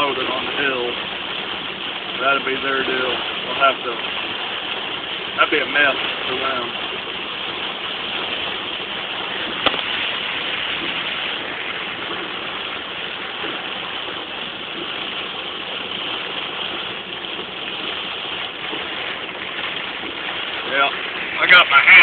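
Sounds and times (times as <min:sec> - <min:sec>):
heavy rain on vehicle: 0:00.0 - 0:22.0
tyres running through water: 0:00.0 - 0:22.0.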